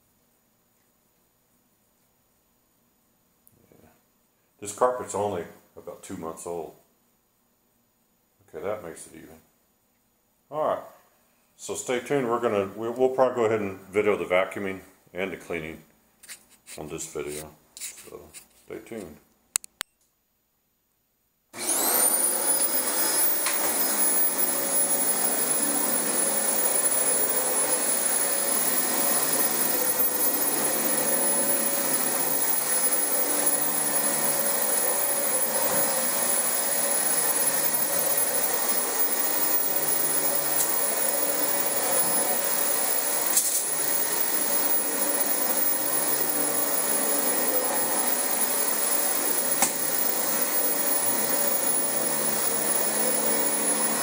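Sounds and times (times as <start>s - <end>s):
sharp click: 19.6s - 20.1s
vacuum cleaner motor whining: 21.6s - 54.0s.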